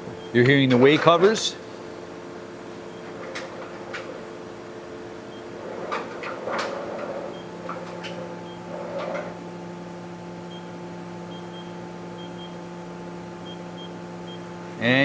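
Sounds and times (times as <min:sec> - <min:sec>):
machine humming: 0:00.0 - 0:15.0
machine covers sliding swishes: 0:02.7 - 0:09.5.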